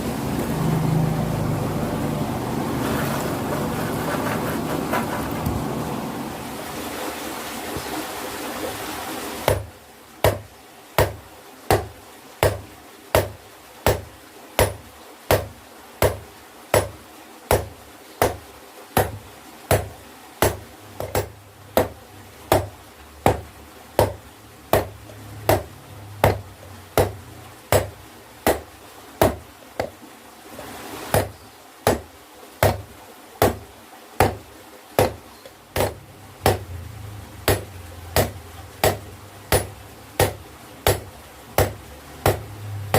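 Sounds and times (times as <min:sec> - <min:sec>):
steady rushing noise: 0:00.0 - 0:08.0.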